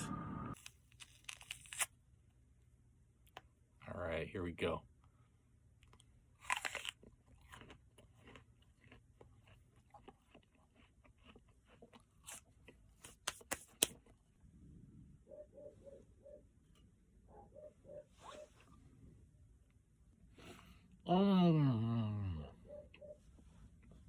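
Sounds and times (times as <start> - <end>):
biting into an apple: 0.6 - 1.9, 5.8 - 14.2
crunchy chewing: 5.8 - 14.6.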